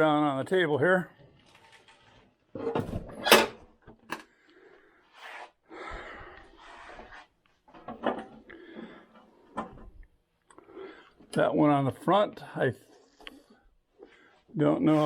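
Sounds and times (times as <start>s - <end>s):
scraping and rustling: 1.2s - 2.9s.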